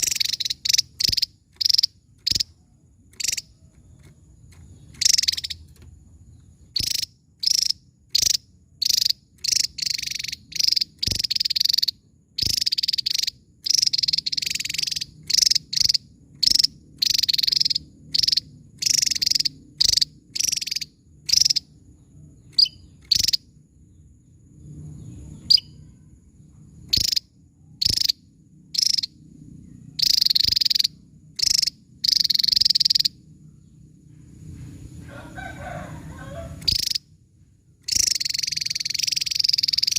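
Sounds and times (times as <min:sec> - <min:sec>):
bird singing high bursts: 0:00.0 - 0:02.6, 0:04.9 - 0:05.7, 0:06.7 - 0:21.7, 0:29.9 - 0:33.2, 0:36.5 - 0:37.1, 0:37.9 - 0:39.9.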